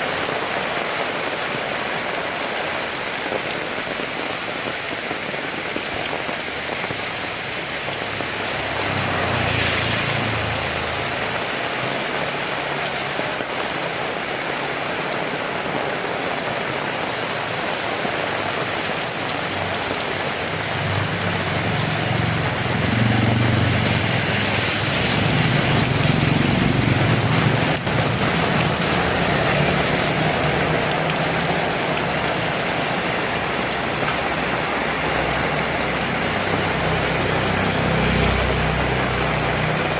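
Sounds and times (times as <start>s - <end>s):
heavy rain: 0.0s - 39.9s
vehicle passing with engine rumble: 7.3s - 12.7s, 20.2s - 39.9s.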